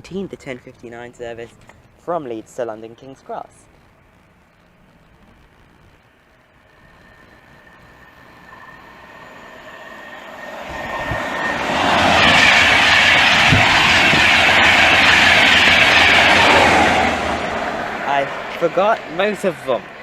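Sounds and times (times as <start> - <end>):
train passing at speed: 6.6 - 20.0.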